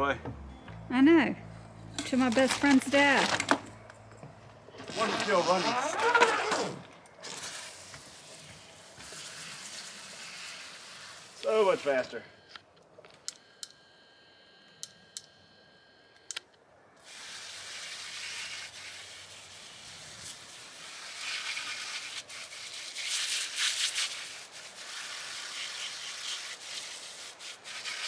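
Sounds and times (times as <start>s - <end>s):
garden hose spraying water: 0.9s - 12.3s, 17.0s - 28.0s
light clicks: 12.5s - 13.8s, 14.7s - 15.4s, 16.1s - 16.6s.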